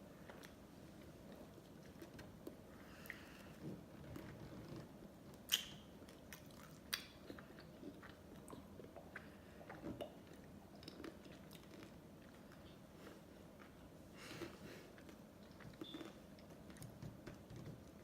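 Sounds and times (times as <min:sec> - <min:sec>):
biting and chewing ice cream: 0:05.5 - 0:18.0.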